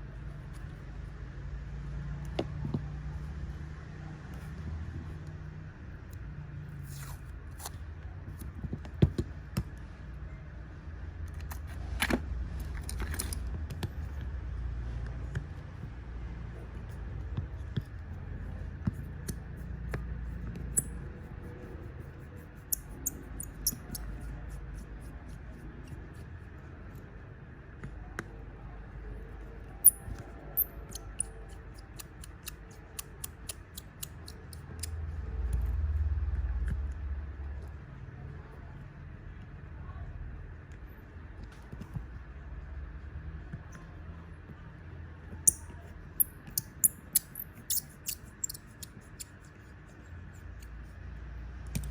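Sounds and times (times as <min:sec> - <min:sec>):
small tools clicking and tapping: 0:20.6 - 0:21.0, 0:22.6 - 0:24.9, 0:29.8 - 0:35.0, 0:45.4 - 0:49.6.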